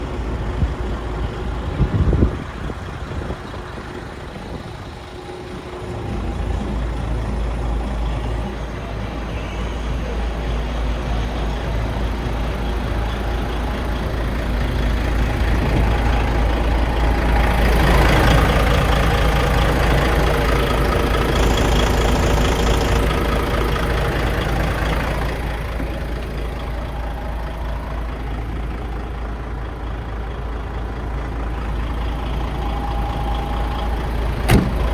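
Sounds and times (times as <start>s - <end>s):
truck diesel engine running: 0.0s - 34.9s
short knock: 34.5s - 34.8s.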